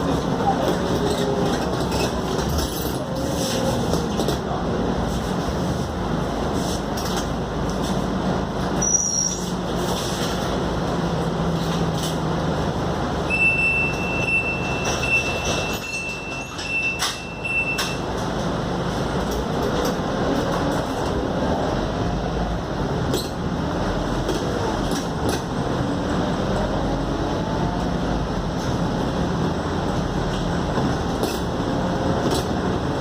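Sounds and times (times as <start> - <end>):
bus engine hum: 0.0 - 33.0
rattles and clicks from bus body: 0.0 - 33.0
road noise: 0.0 - 33.0.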